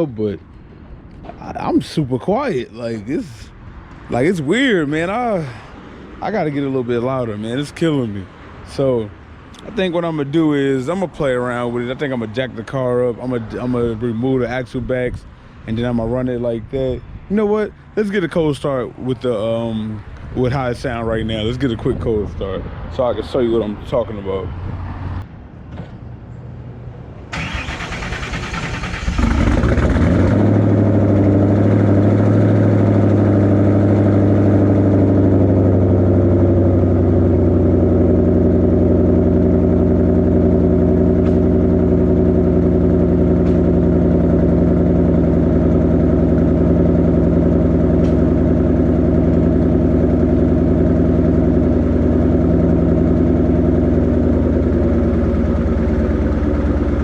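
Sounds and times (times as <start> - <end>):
car engine starting and idling: 27.3 - 57.0.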